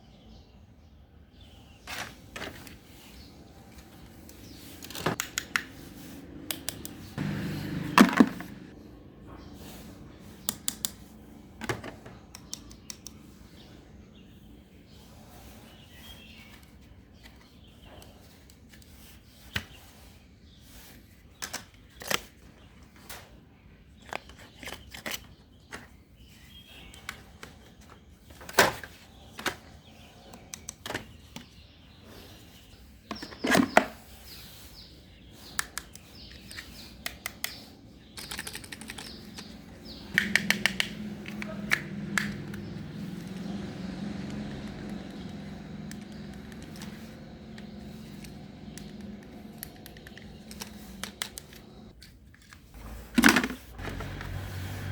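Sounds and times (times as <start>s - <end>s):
low electric motor hum: 5.9s - 10.4s, 39.2s - 51.9s, 52.8s - 54.9s
small hard objects clicking: 38.2s - 42.6s.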